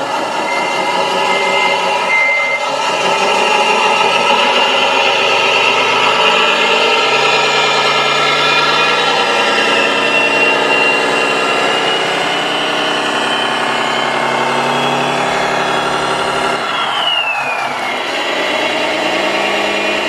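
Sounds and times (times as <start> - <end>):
model machine humming and whining: 0.0 - 20.0
short high beeps: 0.4 - 2.8.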